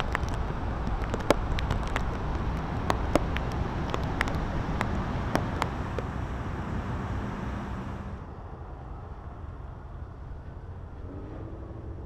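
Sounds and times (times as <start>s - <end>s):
raindrops ticking: 0.0s - 6.5s
rain hissing: 0.0s - 8.2s
wind buffeting microphone: 0.0s - 12.0s.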